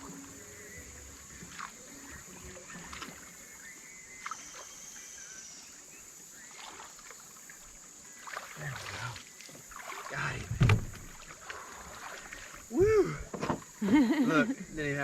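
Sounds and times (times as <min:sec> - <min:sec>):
water sloshing and splashing: 0:00.0 - 0:05.0, 0:05.8 - 0:13.8
steady high-pitched hiss: 0:00.0 - 0:15.0
knocks on kayak: 0:10.4 - 0:11.2, 0:13.3 - 0:13.7.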